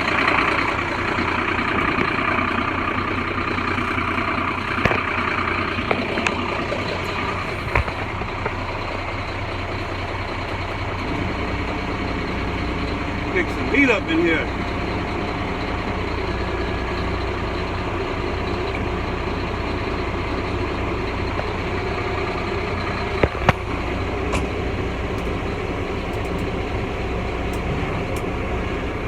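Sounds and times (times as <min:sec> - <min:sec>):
truck engine idling: 0:00.0 - 0:29.0
sharp clicks: 0:26.0 - 0:26.6.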